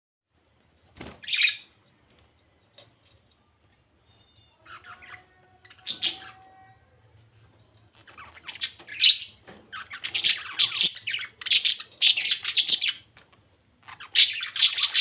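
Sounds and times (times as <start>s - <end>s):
budgerigar chirping and whistling: 1.2s - 1.7s, 8.2s - 13.1s, 13.9s - 15.0s.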